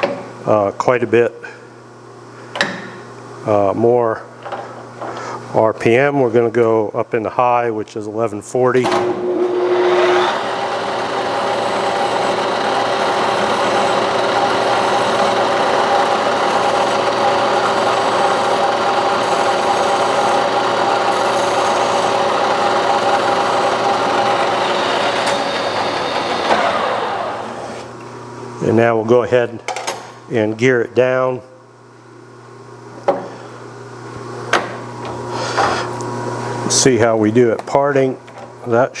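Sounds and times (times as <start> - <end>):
metal lathe running: 9.2 - 27.9
file rasping on metal: 10.8 - 25.0.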